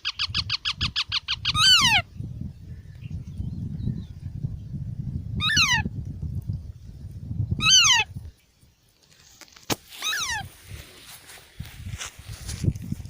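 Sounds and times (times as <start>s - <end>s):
parrot chick squawking: 0.0s - 2.0s, 5.4s - 5.8s, 7.6s - 8.1s, 10.0s - 10.5s.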